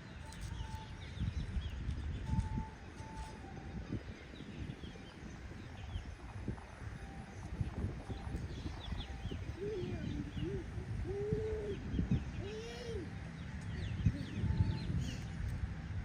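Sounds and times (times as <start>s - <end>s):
steady low rumble: 0.0s - 16.0s
birds cooing: 8.5s - 13.2s.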